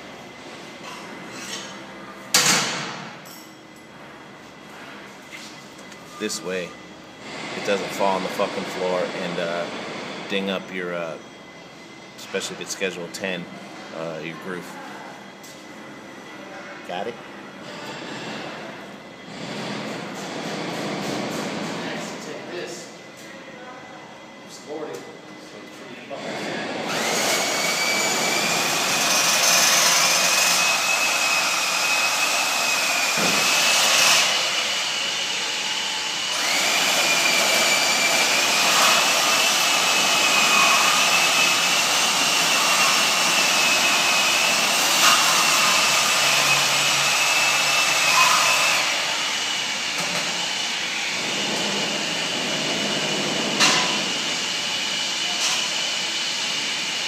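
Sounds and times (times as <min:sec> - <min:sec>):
bandsaw cutting steel pipe: 0:26.9 - 0:50.5, 0:51.1 - 0:56.6.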